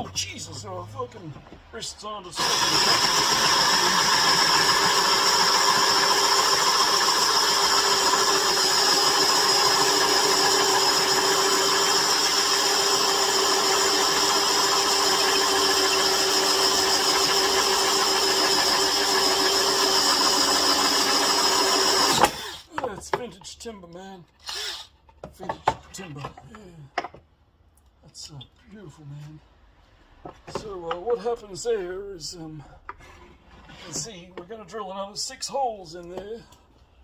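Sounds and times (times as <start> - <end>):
electric drill drilling into wood: 2.4 - 22.7, 24.4 - 24.9.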